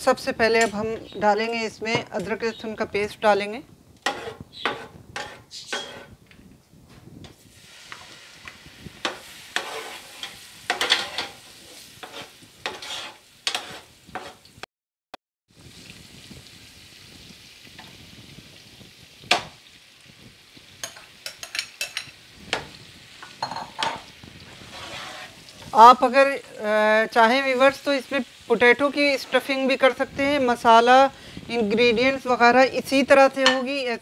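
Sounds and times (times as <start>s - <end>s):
metal ladle scraping pan: 4.0s - 6.2s, 9.0s - 14.5s, 23.3s - 25.9s, 28.6s - 30.1s
paste sizzling in hot oil: 4.0s - 6.2s, 7.3s - 14.6s, 15.5s - 34.0s
glass bowl clinking: 23.4s - 24.0s.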